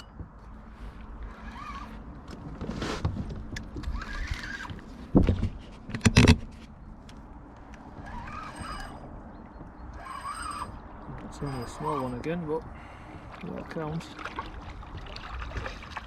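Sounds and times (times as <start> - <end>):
splashing and handling noise: 12.0 - 16.0.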